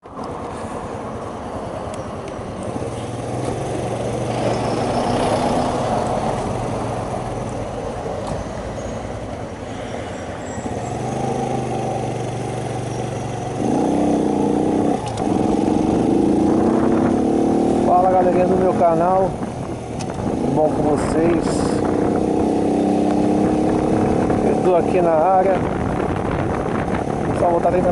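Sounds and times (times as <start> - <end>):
motorcycle engine running: 10.7 - 27.9.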